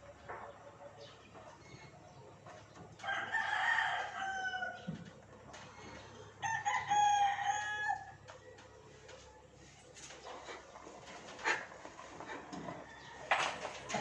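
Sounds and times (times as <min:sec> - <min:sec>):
rooster crowing: 0:03.0 - 0:04.9, 0:06.4 - 0:08.2, 0:12.8 - 0:13.4.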